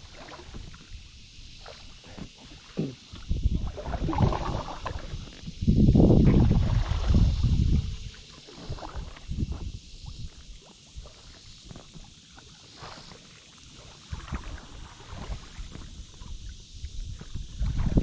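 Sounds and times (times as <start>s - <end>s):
paddle splashes and drips: 0.0s - 5.6s, 6.2s - 18.0s
wind buffeting microphone: 3.2s - 10.4s, 14.1s - 18.0s.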